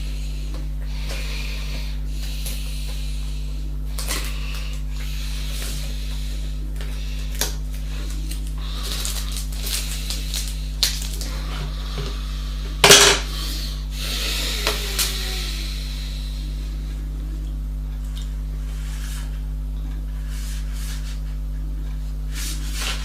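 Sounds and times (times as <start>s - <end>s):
steady low hum: 0.0s - 23.0s
hard objects clicking and clattering: 12.8s - 13.3s.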